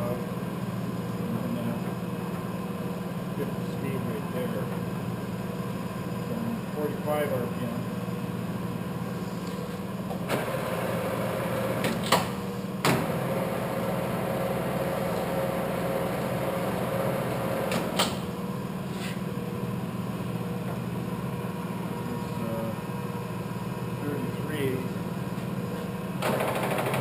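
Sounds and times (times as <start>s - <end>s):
lathe humming: 13.0s - 20.3s.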